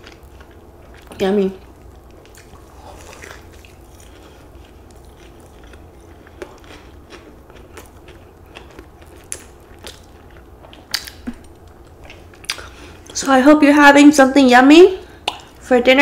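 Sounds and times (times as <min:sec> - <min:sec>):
close-miked chewing: 0:00.0 - 0:13.3.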